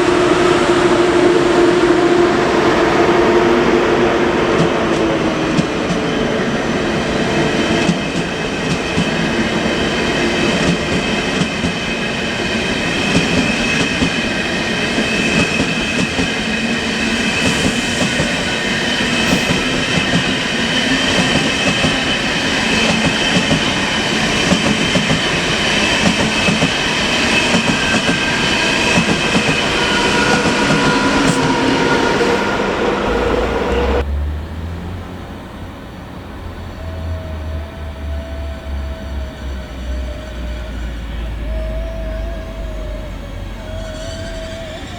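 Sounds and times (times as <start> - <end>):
train running on rails: 0.0 - 44.9
high wheel squeal: 9.2 - 34.0, 36.5 - 44.9.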